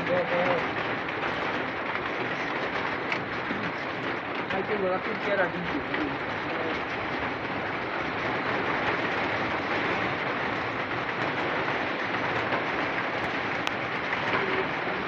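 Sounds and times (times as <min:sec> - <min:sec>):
heavy rain hissing: 0:00.0 - 0:15.0.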